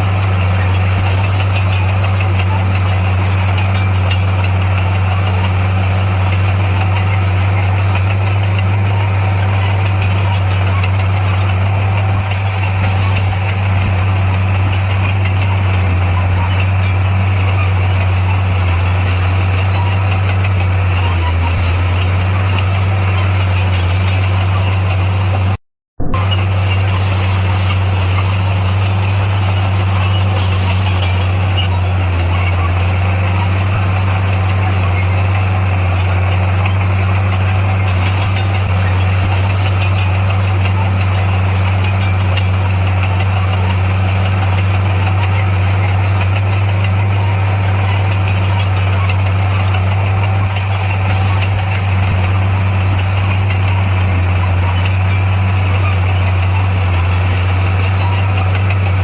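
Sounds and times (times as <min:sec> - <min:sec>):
bulldozer diesel engine drone: 0:00.0 - 0:59.0.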